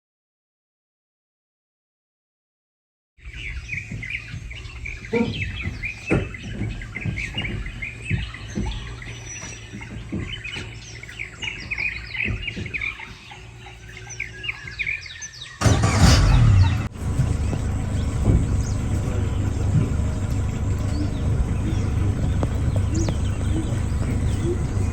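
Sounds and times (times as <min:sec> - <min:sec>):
birds chirping and calling: 0:03.2 - 0:24.9
dull knocks: 0:03.6 - 0:13.3, 0:17.0 - 0:24.9
steady low rumble: 0:15.7 - 0:24.9.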